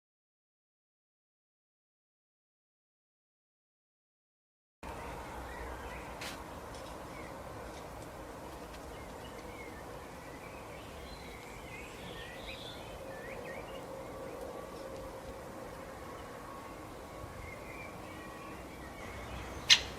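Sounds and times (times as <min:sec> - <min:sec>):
small birds chirping: 0:04.9 - 0:19.9.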